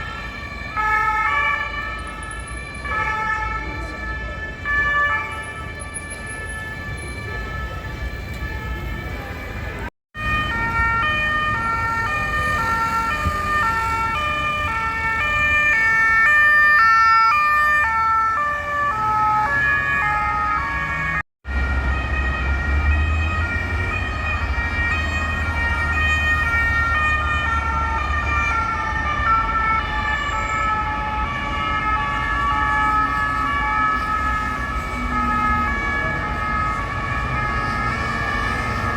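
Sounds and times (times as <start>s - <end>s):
police two-tone sirens wailing: 0.0s - 38.9s.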